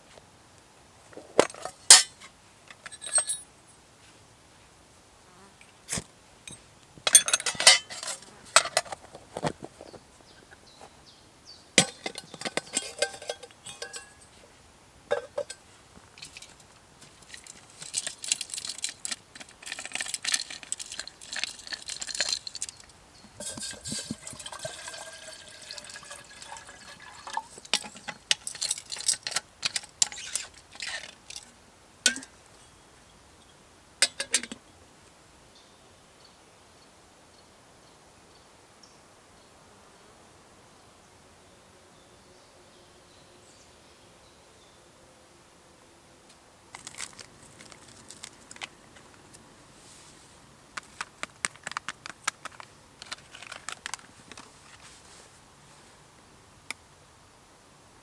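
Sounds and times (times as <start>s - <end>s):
hard objects clinking and clattering: 11.8s - 14.2s, 17.2s - 31.5s, 46.8s - 48.7s, 50.8s - 54.5s.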